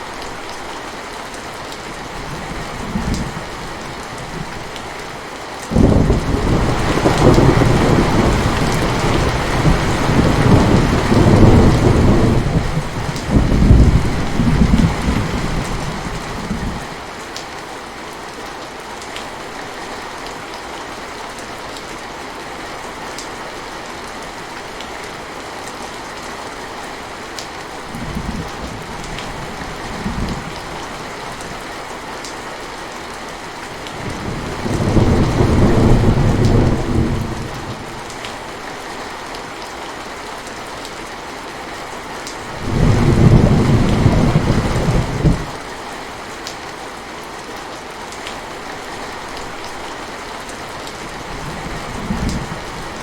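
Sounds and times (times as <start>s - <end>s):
rain falling: 0.0s - 53.0s
thunder rumbling: 5.7s - 16.8s, 33.9s - 38.2s, 42.5s - 45.6s.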